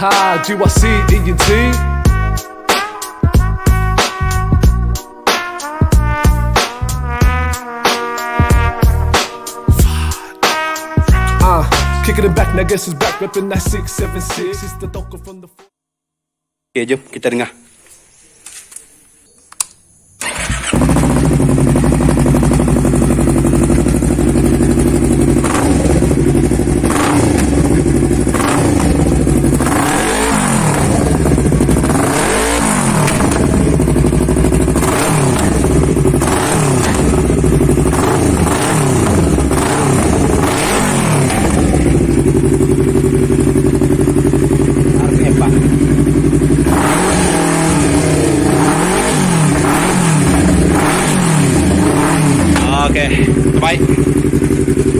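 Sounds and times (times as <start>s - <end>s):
clicks: 18.4s - 20.4s
motorcycle engine idling and revving: 20.2s - 54.9s.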